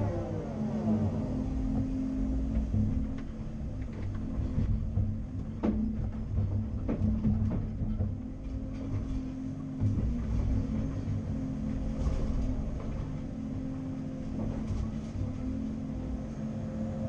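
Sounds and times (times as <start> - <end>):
excavator diesel engine running: 0.0 - 17.0
short knocks and clanks: 1.6 - 16.2.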